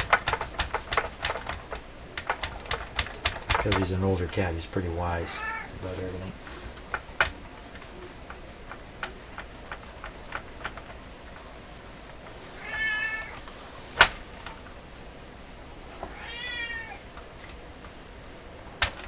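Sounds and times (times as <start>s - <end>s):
cat meowing: 5.2s - 5.8s, 12.6s - 13.4s, 16.1s - 17.0s.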